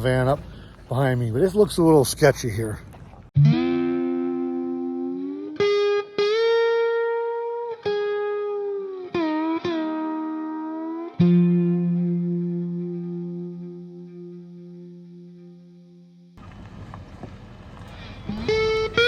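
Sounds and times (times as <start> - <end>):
electric guitar sliding notes: 3.4 - 16.3, 18.2 - 19.0.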